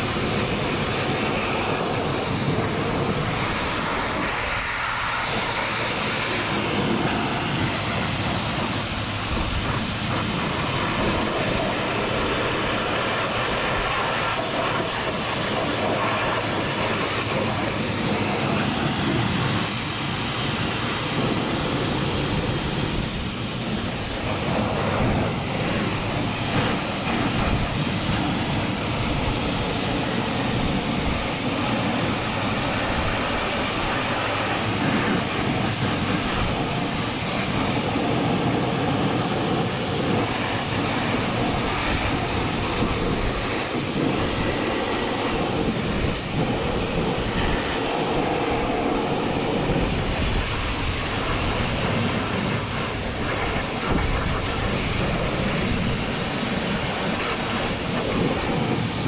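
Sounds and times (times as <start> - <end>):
pressure washer spraying: 0.0 - 59.0.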